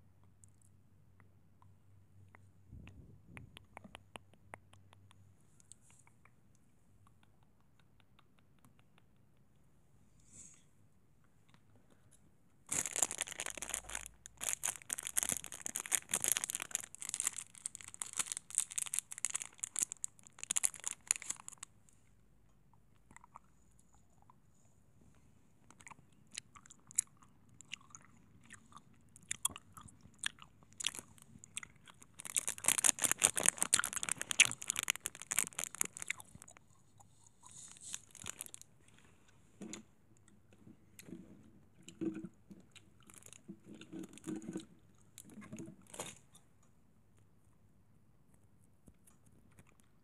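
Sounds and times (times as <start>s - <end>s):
crisp crackling and crunching: 12.7s - 21.8s, 29.2s - 36.7s, 37.5s - 38.7s.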